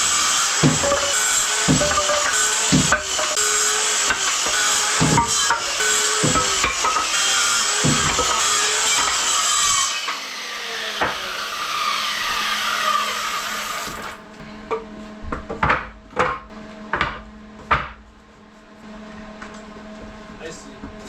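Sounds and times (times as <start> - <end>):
power tool running: 0.0 - 14.3
sharp knocks on wood: 0.6 - 1.1, 1.7 - 3.2, 5.0 - 5.5, 6.2 - 7.0, 7.8 - 8.4.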